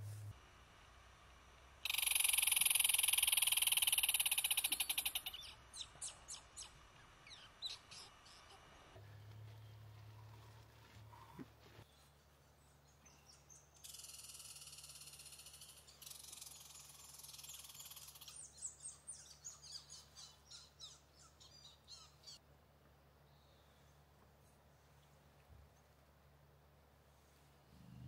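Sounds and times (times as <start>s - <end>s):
faint generator hum: 0.0s - 28.0s
songbird singing: 1.9s - 8.8s, 11.8s - 22.4s.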